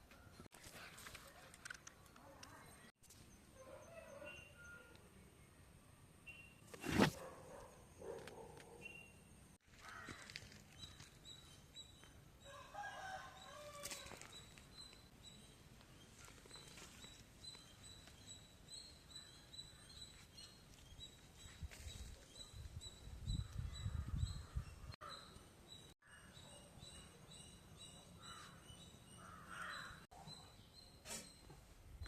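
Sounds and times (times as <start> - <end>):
rooster crowing: 12.5 - 14.2.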